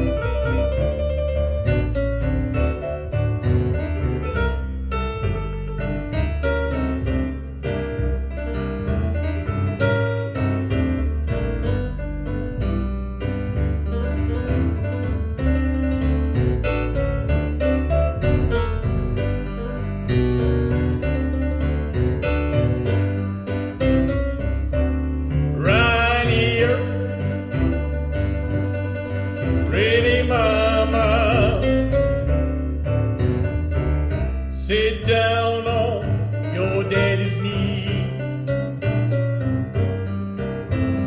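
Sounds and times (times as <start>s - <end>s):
piano with rhythmic bass line: 0.0s - 41.0s
person singing: 29.7s - 31.8s.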